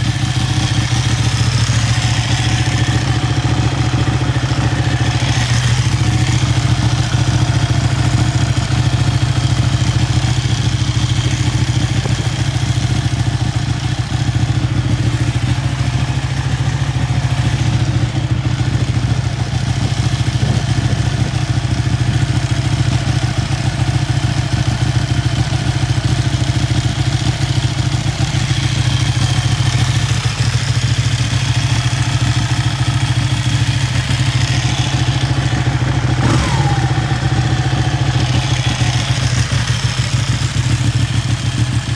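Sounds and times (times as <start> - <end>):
motorcycle engine idling: 0.0 - 41.9.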